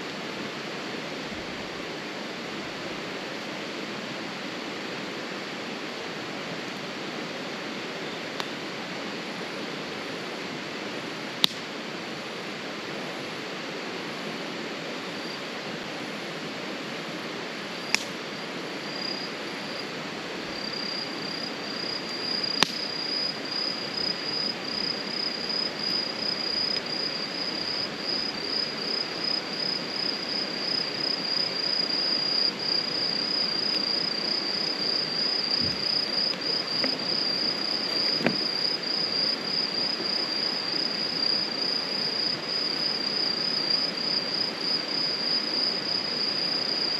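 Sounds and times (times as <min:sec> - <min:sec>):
campfire hissing and popping: 0:10.6 - 0:12.9, 0:15.6 - 0:44.1
insect high pulsing trill: 0:14.9 - 0:46.9.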